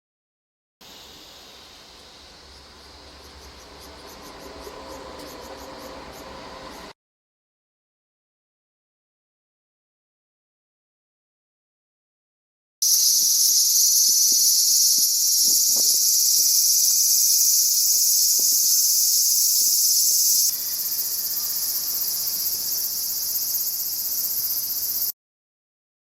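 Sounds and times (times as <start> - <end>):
cicadas singing: 0.8 - 6.9, 12.8 - 25.1.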